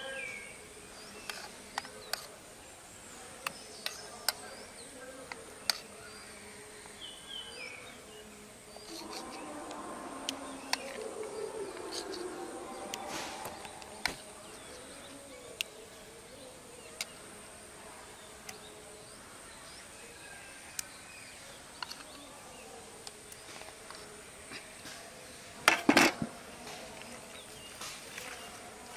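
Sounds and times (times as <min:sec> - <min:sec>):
insect buzzing: 0:05.0 - 0:19.2.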